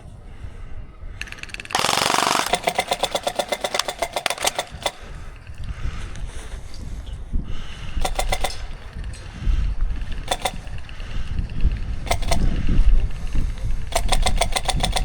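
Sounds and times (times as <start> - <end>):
airsoft gun firing bursts: 1.2 - 5.4, 8.0 - 9.2, 9.8 - 15.0.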